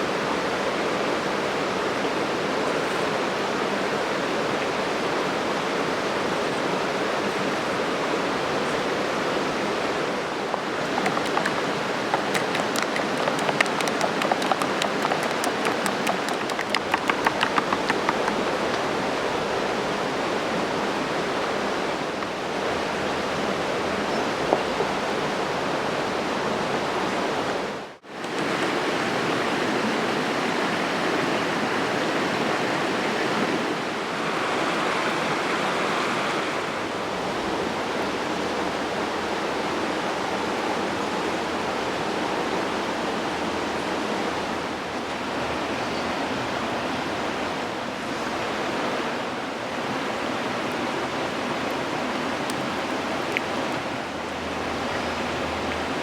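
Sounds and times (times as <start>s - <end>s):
campfire crackle: 10.9s - 18.8s.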